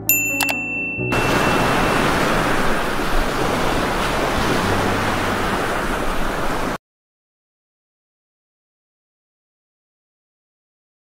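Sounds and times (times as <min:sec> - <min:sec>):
heavy rain pouring: 0:01.1 - 0:06.8.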